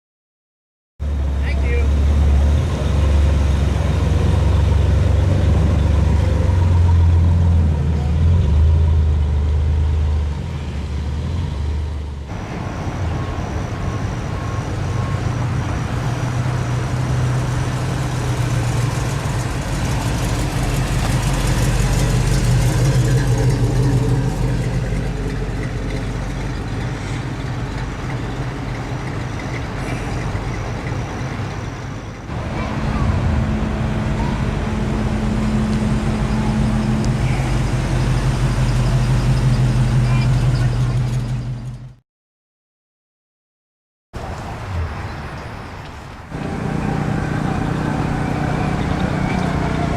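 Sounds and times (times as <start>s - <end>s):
engine running: 1.0s - 42.0s, 46.3s - 49.9s
hot rod engines idling: 13.2s - 41.9s.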